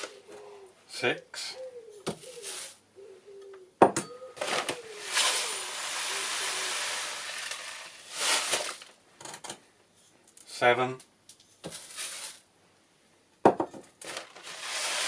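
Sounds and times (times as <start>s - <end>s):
cat litter pouring: 4.4s - 9.0s, 11.7s - 12.4s, 14.0s - 15.0s.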